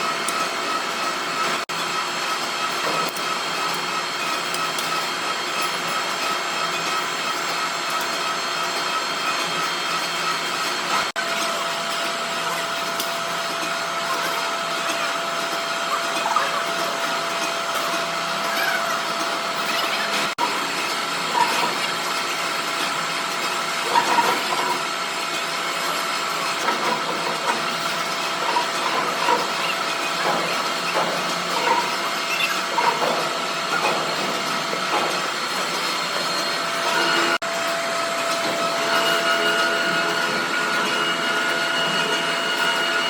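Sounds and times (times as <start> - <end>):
workshop machinery whining: 0.0 - 43.0
short squeaks: 31.6 - 33.0.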